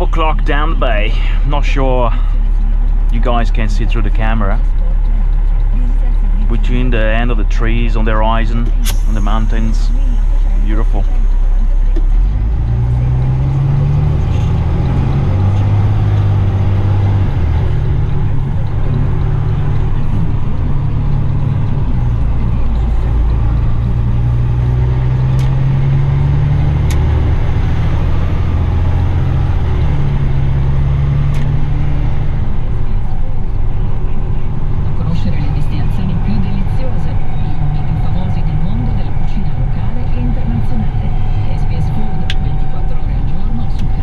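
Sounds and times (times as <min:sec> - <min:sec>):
truck diesel engine drone: 0:00.0 - 0:44.0.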